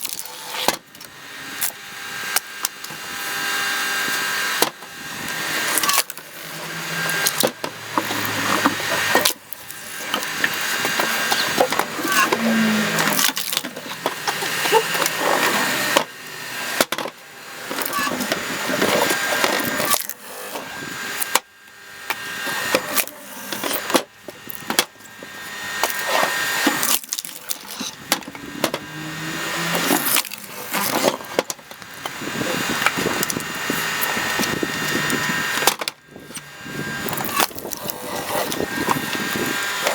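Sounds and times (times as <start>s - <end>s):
wood creaking and cracking: 0.0s - 20.2s, 22.1s - 39.9s
log splitter drive tone: 0.0s - 39.9s
log splitting with sharp crack: 18.8s - 20.2s, 25.8s - 28.9s, 29.8s - 36.4s, 37.0s - 39.9s.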